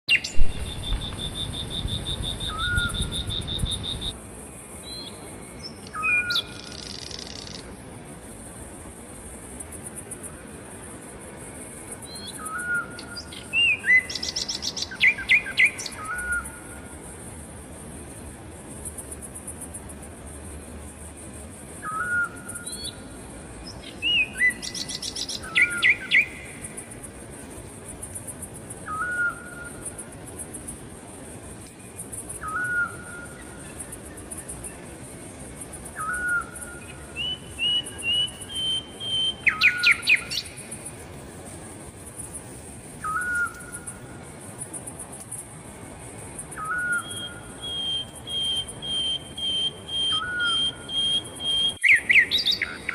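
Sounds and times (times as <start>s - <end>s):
fast pulsed bird notes: 0.1s - 4.2s, 23.7s - 27.2s, 36.0s - 41.0s
short whistled bird calls: 0.1s - 4.2s, 12.0s - 16.6s, 21.8s - 23.0s, 28.8s - 29.8s, 32.4s - 33.7s, 36.0s - 40.6s, 43.0s - 43.9s, 46.6s - 52.9s
low rumble: 0.4s - 4.1s.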